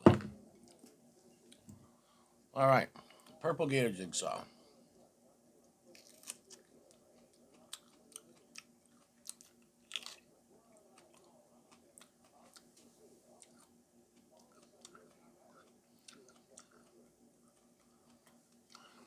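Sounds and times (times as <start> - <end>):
chewing crisp pepper: 5.9 - 19.0.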